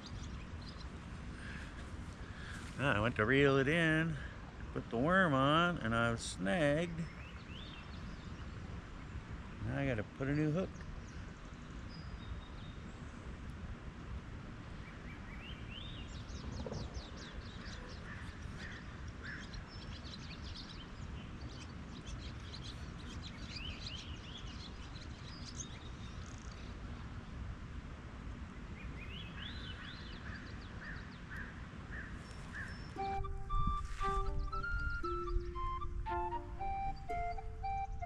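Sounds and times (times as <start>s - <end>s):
birds chirping: 0.0s - 13.3s, 14.7s - 26.9s, 28.8s - 38.0s
music: 33.0s - 38.0s.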